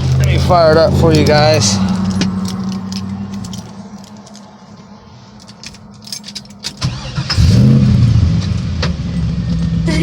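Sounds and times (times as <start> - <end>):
car engine cranking and starting: 0.0 - 4.5, 5.4 - 10.0
keys jangling: 1.0 - 4.6, 5.3 - 7.2.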